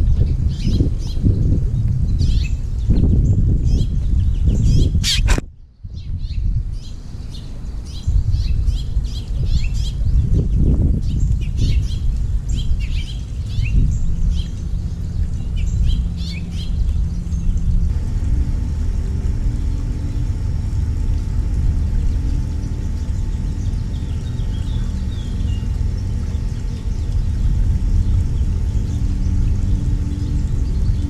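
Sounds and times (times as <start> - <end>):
songbirds chirping: 0.1 - 31.0
low rumble: 8.1 - 31.0.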